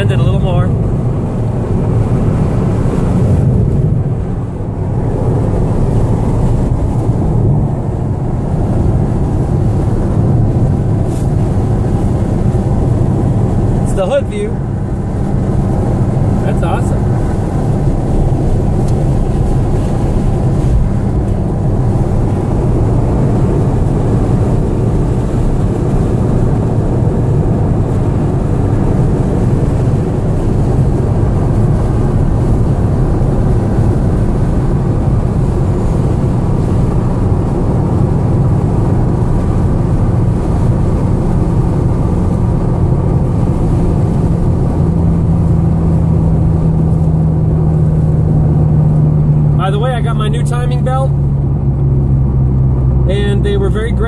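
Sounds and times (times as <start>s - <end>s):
car engine droning: 0.0s - 54.0s
tyre and road noise: 0.0s - 54.0s.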